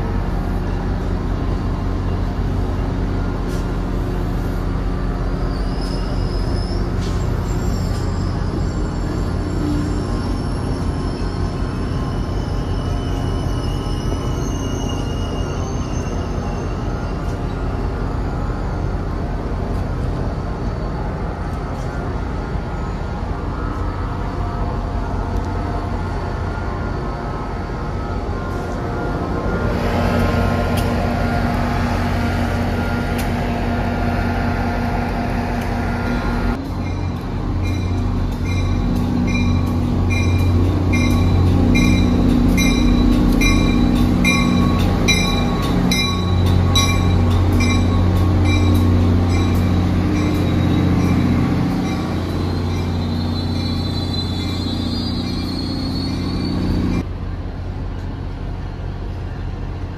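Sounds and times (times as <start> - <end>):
train humming: 0.0 - 59.9
high wavering squeal: 5.0 - 19.0, 25.8 - 57.0.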